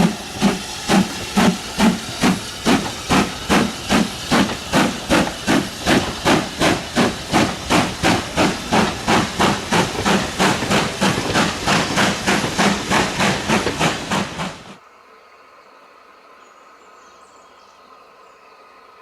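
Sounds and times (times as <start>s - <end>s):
steam locomotive chuffing: 0.0s - 14.8s.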